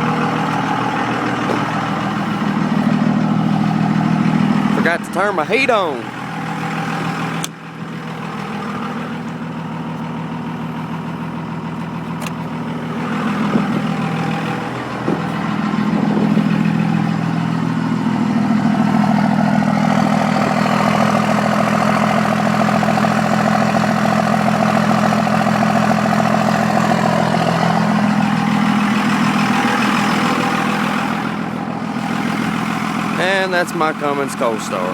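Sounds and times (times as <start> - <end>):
diesel engine idling: 0.0 - 34.9
click: 12.2 - 12.4.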